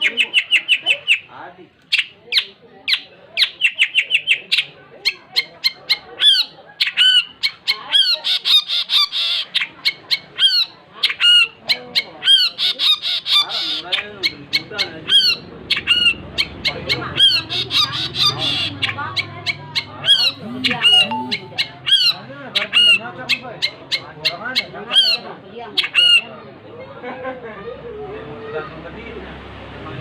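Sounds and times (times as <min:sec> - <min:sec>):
bird chattering and whistling: 0:02.0 - 0:23.0.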